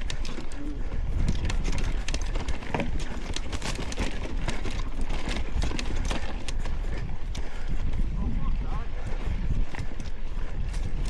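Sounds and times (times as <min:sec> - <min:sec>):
bicycle rattling and knocking: 0:00.0 - 0:08.0
wind rumbling on microphone: 0:00.0 - 0:11.0.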